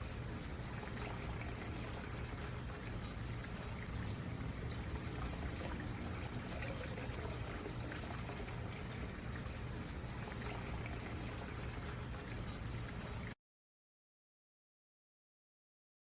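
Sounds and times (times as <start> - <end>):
stream babbling: 0.0 - 9.4.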